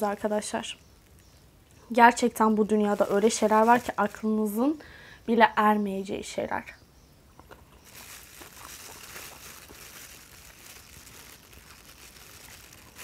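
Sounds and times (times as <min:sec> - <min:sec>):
faint chewing: 0:07.4 - 0:13.0.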